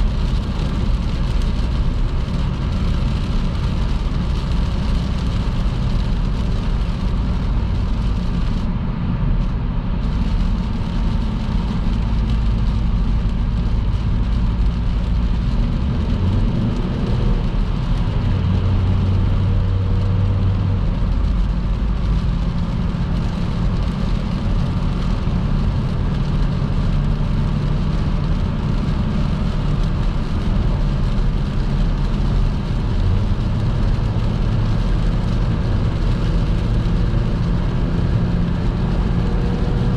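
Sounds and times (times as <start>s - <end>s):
car engine and road drone: 0.0s - 39.9s
tyres hissing on wet road: 10.0s - 39.9s.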